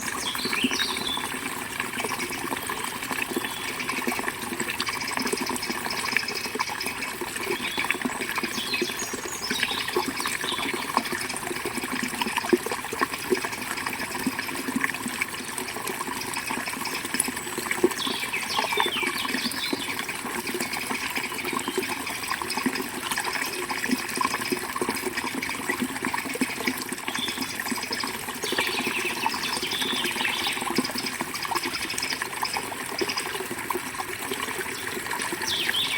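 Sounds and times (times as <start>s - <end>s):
birds chirping: 0.0s - 1.3s, 28.5s - 31.0s, 34.8s - 35.9s
river water flowing: 0.0s - 35.9s.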